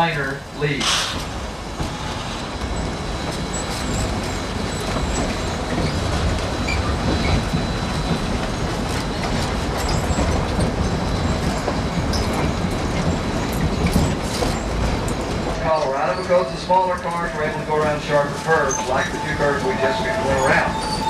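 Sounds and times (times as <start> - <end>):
train rumbling over rails: 0.0 - 21.0
rail joint clicks: 0.7 - 21.0
faint high wheel squeal: 15.7 - 21.0.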